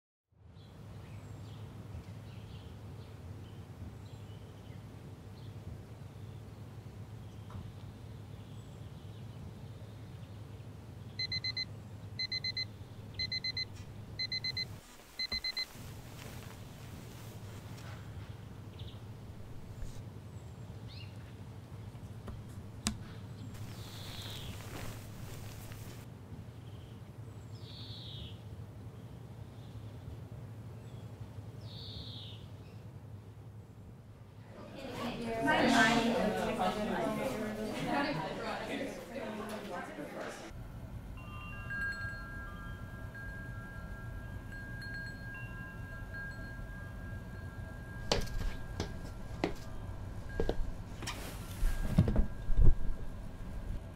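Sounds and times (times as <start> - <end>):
steady low hum: 10.6 - 27.0, 40.5 - 53.9
faint bird chirps: 23.6 - 25.0
high chime tones ringing: 41.1 - 53.9.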